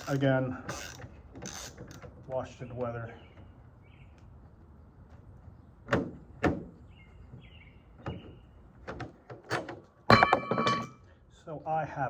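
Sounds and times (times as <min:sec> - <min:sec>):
bird chirping: 0:02.8 - 0:05.9, 0:06.8 - 0:08.8.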